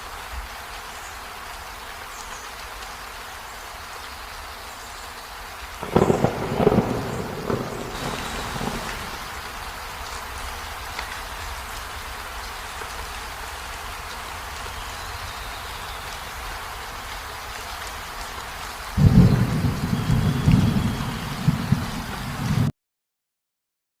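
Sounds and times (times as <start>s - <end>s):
rain falling: 0.0s - 22.7s
rolling thunder: 5.8s - 9.8s, 19.0s - 22.7s.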